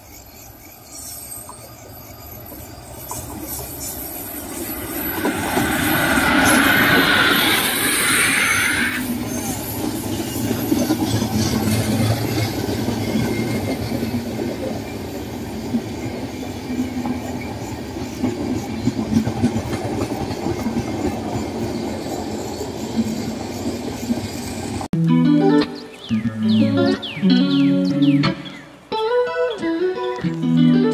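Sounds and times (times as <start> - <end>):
rushing hiss: 0.0 - 13.2
train coaches rumbling past: 0.0 - 24.9
wheels clacking over rail joints: 0.0 - 24.9.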